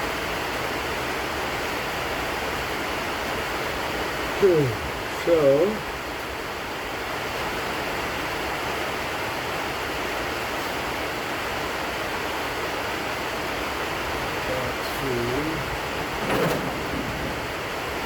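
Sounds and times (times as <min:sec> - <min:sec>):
steady rushing noise: 0:14.4 - 0:18.0.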